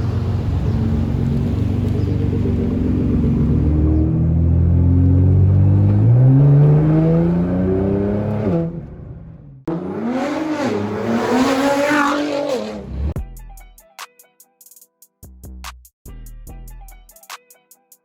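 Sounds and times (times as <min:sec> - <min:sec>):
car engine accelerating and revving: 0:00.0 - 0:13.2.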